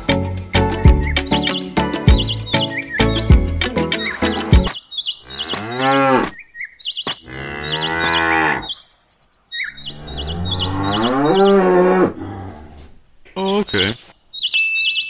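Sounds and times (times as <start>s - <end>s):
cow mooing: 5.2s - 6.4s, 7.2s - 8.8s, 9.8s - 12.9s.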